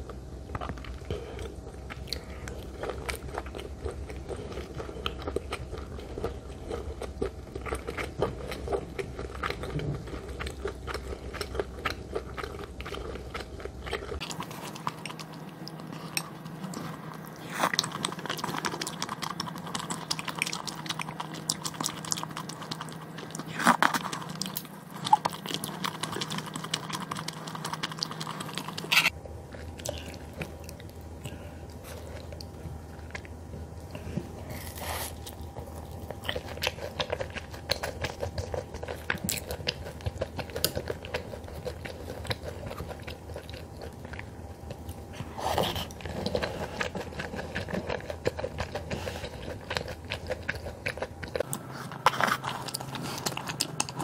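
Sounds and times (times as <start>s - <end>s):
crunchy wet chewing: 0.0s - 54.0s
steady background hum: 0.0s - 54.0s.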